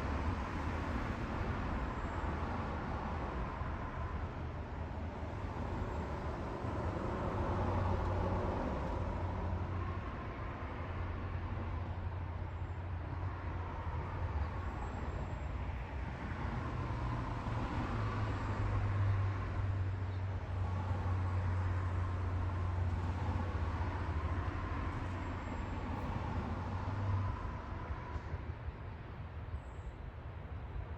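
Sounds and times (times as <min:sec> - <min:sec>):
road noise: 0:00.0 - 0:30.9.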